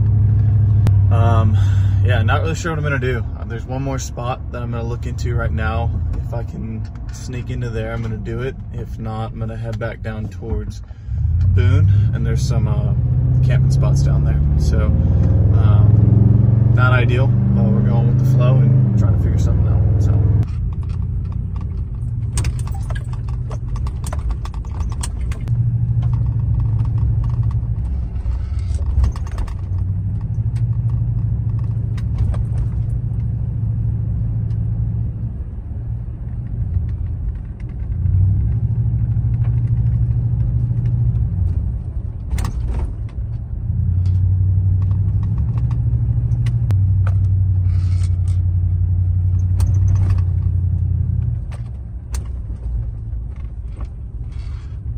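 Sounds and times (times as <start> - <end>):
truck engine and road rumble: 0.0 - 54.9
small clicks and rattles: 20.4 - 33.3.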